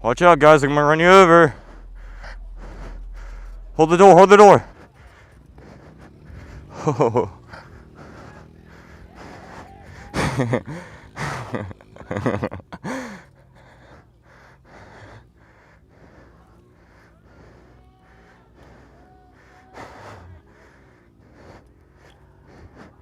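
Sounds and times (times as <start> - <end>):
group of people exclaiming: 7.8 - 10.5, 16.6 - 21.0
chatter of many voices: 16.3 - 22.5.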